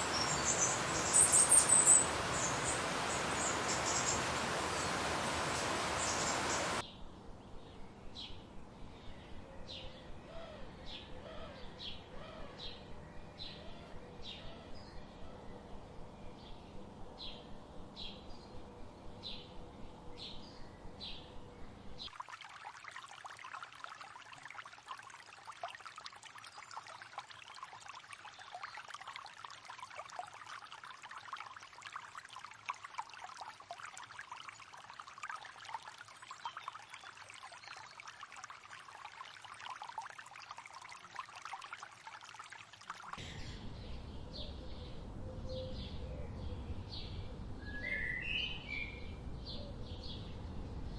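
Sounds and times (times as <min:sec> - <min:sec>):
water trickling and splashing: 0:00.0 - 0:06.8, 0:22.0 - 0:43.4.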